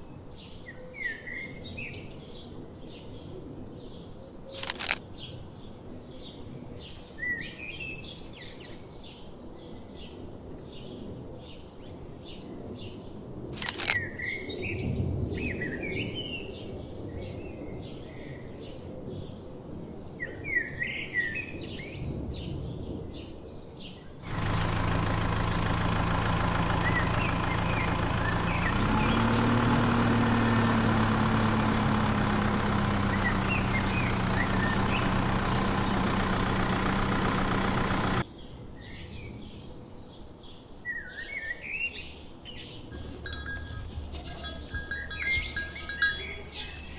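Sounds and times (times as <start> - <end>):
sharp click: 4.6 - 5.0, 13.6 - 14.0
small birds chirping: 43.0 - 46.9.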